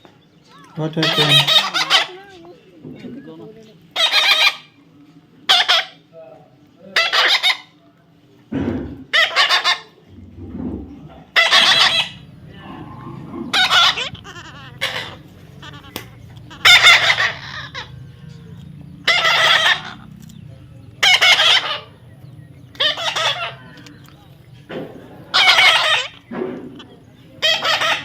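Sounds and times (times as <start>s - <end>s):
parrot squawking: 0.5s - 2.4s, 3.9s - 4.8s, 5.5s - 6.0s, 7.0s - 7.8s, 9.1s - 10.0s, 11.3s - 28.0s.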